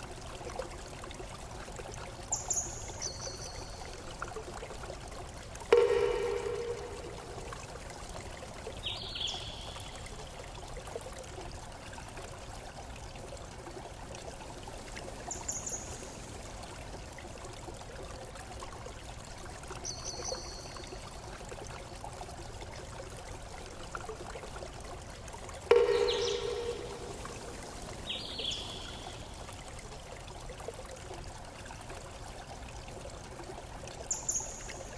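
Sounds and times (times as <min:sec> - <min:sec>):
running water: 0:00.0 - 0:34.9
ringing tone: 0:05.7 - 0:07.7, 0:25.7 - 0:28.0.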